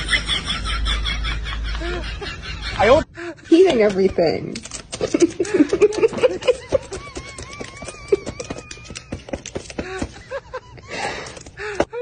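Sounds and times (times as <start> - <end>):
rapid clicking and tapping: 3.6 - 10.3.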